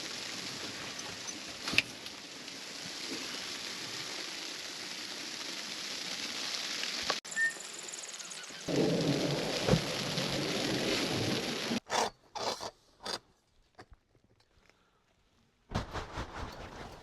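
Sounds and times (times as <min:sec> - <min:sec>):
patter of falling precipitation: 0:00.0 - 0:11.8, 0:13.6 - 0:17.0.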